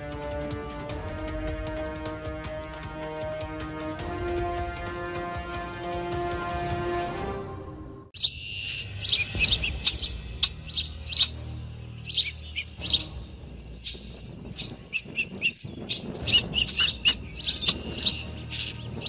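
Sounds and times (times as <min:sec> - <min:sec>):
birds chirping: 0:08.2 - 0:19.0.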